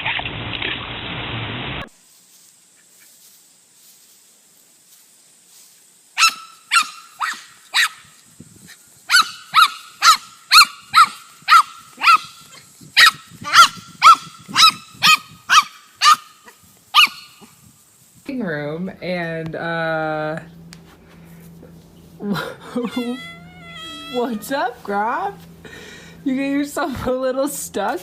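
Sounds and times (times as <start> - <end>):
dog barking high-pitched: 6.2 - 8.1, 9.1 - 17.5, 22.9 - 24.4.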